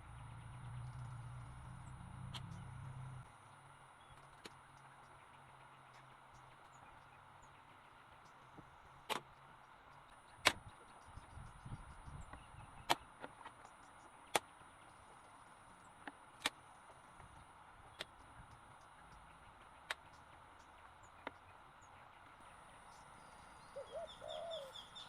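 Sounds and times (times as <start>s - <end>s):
low handling rumble: 0.0s - 3.3s.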